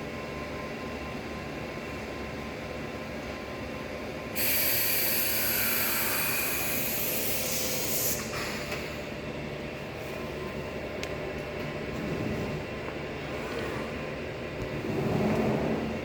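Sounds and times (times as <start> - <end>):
high-pitched hissing whine: 4.4 - 9.0.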